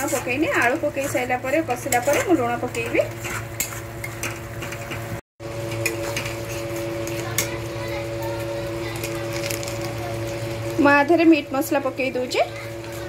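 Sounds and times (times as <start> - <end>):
paste sizzling in oil: 0.0 - 4.6
metal spatula scraping pan: 0.0 - 5.1, 5.7 - 7.6
steady multi-tone hum: 4.8 - 13.0.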